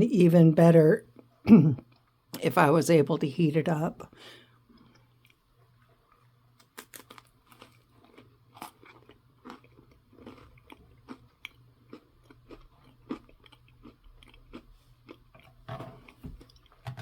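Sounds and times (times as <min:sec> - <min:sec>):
person chewing a cracker: 0:04.6 - 0:17.0.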